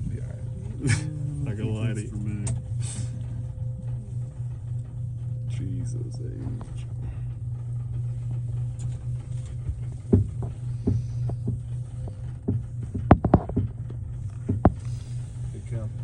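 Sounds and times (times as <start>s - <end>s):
low hum in tram cabin: 0.0s - 16.0s
sharp knocks and clacks: 10.1s - 11.7s, 12.4s - 14.8s.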